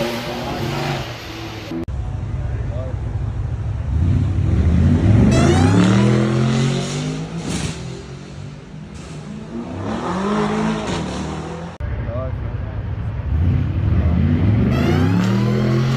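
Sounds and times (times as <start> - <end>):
car engine accelerating hard: 3.8 - 11.8, 13.1 - 15.9.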